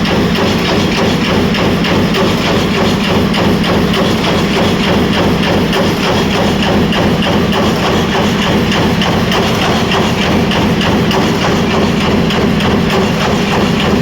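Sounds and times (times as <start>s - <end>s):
machine hum: 0.0s - 14.0s
press ram stamping: 0.0s - 14.0s.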